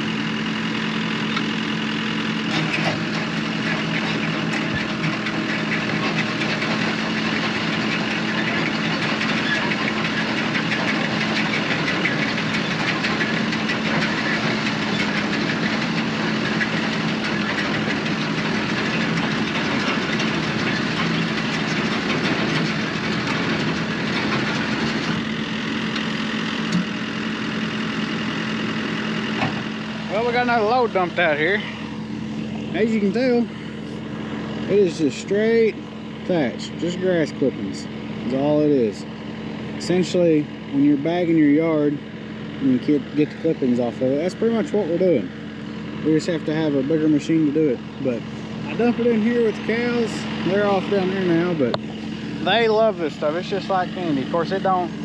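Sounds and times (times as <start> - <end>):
engine hum: 0.0 - 55.0.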